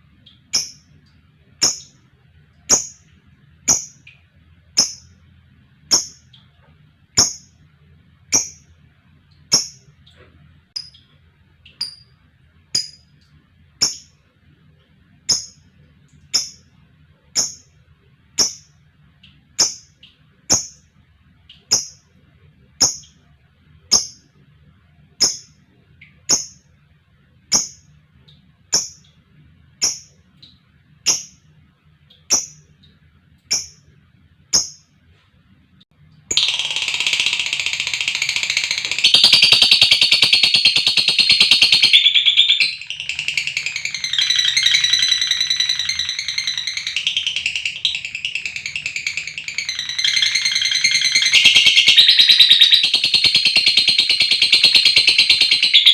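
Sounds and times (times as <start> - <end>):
bird chirping: 0.2 - 1.0, 1.6 - 2.0, 2.7 - 3.1, 3.7 - 4.2, 4.8 - 5.2, 5.9 - 6.5, 7.2 - 7.6, 8.3 - 8.8, 9.4 - 10.2, 10.8 - 12.2, 12.8 - 13.2, 13.8 - 14.2, 15.3 - 16.7, 17.3 - 17.8, 18.4 - 20.9, 21.5 - 22.1, 22.8 - 23.2, 23.9 - 24.3, 25.2 - 26.7, 27.5 - 29.2, 29.8 - 31.5, 32.1 - 35.0, 36.3 - 55.9.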